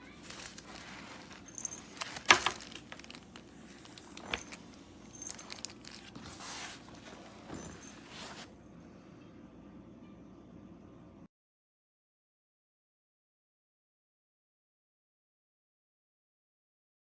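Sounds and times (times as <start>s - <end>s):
rustling and handling noises: 0.0s - 8.6s
faint hum: 0.0s - 11.3s.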